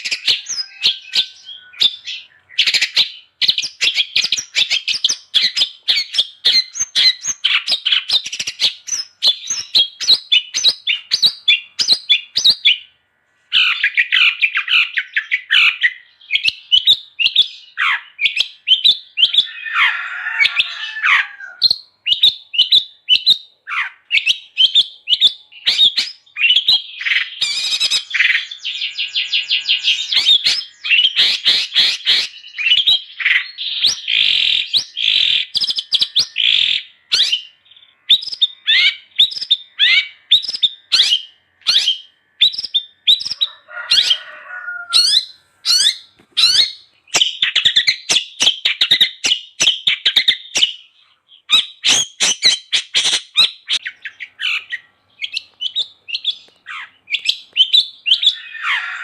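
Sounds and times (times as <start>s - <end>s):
bird chattering song: 0.0s - 59.0s.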